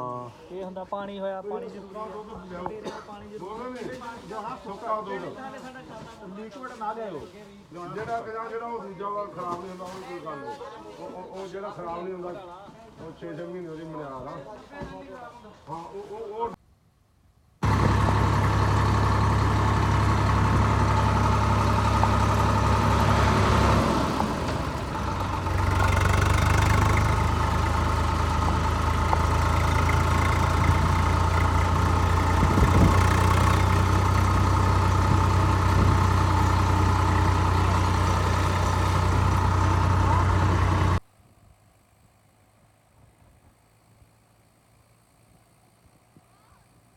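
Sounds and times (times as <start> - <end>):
engine idling: 17.6 - 41.0.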